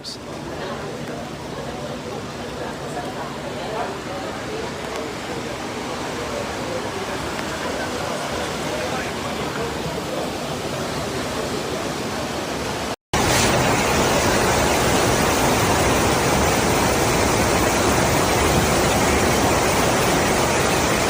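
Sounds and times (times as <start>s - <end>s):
rushing water: 0.0s - 21.0s.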